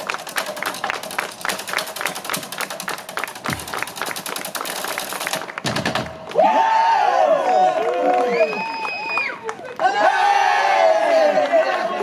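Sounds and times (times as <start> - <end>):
percussion drumming sharp strikes: 0.0 - 6.4
audience clapping along: 0.0 - 12.0.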